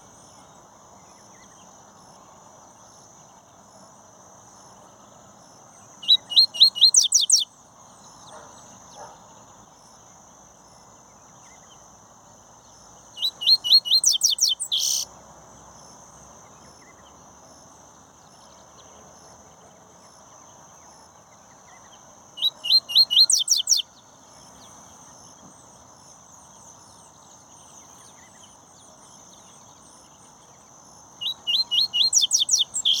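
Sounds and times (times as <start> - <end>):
bird singing high whistled notes: 6.0 - 7.5, 13.2 - 15.1, 22.4 - 23.9, 31.2 - 33.0.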